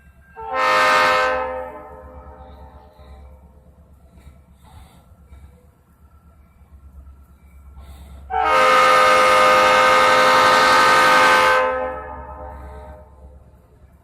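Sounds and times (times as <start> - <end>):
locomotive air horn blast: 0.4 - 3.4, 8.0 - 13.4.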